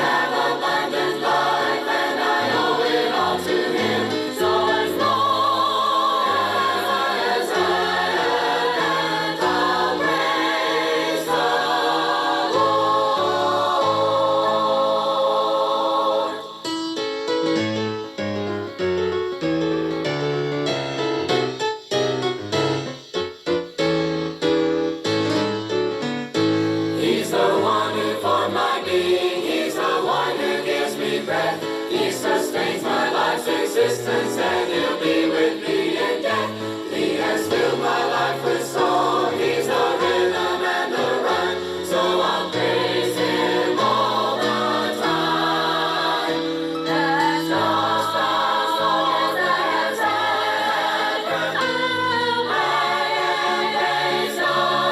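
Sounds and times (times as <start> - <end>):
gospel choir singing: 0.0 - 16.7, 26.9 - 54.9
piano chords: 0.0 - 54.9.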